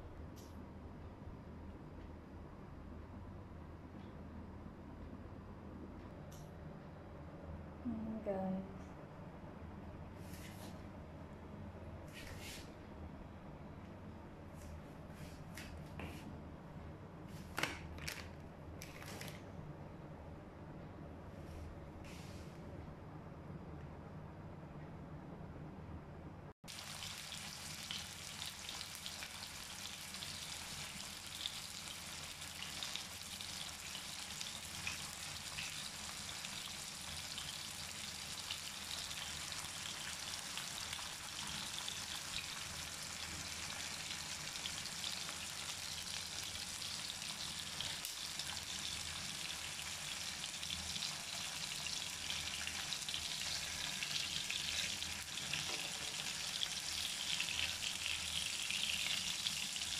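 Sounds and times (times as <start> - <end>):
chicken sizzling in hot oil: 26.7 - 59.9.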